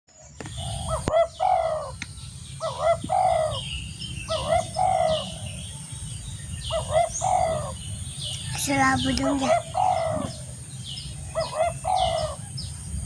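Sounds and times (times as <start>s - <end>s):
small birds chirping: 0.1s - 13.0s
dove cooing: 0.5s - 2.0s, 2.6s - 3.7s, 4.3s - 5.6s, 6.7s - 7.8s, 8.7s - 10.6s, 11.2s - 12.6s.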